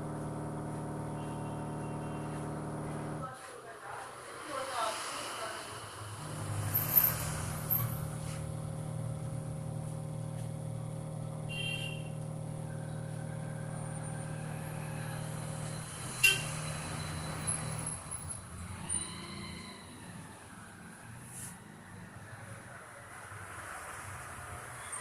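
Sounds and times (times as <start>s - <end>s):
excavator diesel engine running: 0.0s - 3.2s, 6.2s - 18.6s.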